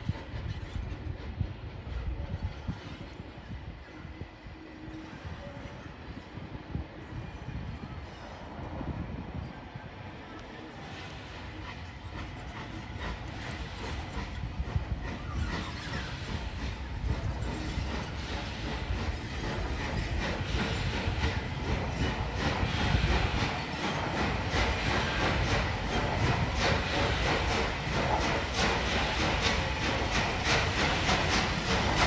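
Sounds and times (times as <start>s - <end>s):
train rumbling and clattering: 0.0s - 32.0s.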